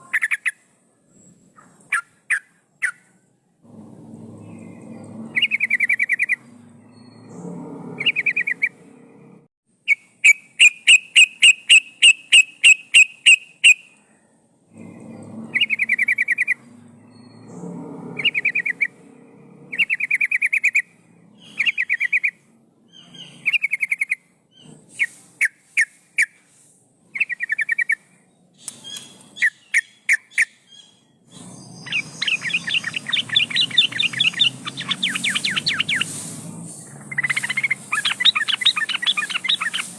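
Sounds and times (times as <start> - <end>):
bulbul singing: 3.7 - 9.3, 9.9 - 14.0, 19.7 - 24.8, 28.6 - 39.9.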